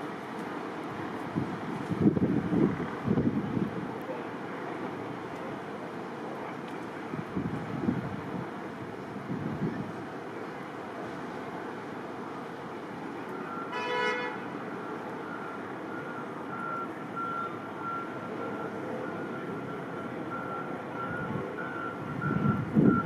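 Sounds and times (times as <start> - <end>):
street noise: 0.0 - 23.0
wind: 0.0 - 23.0
vehicle horn toot: 13.7 - 14.4.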